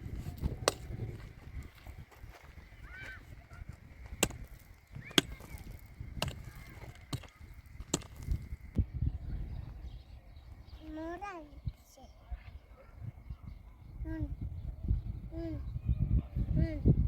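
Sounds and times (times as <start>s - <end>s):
sharp knocks: 4.2s - 8.4s.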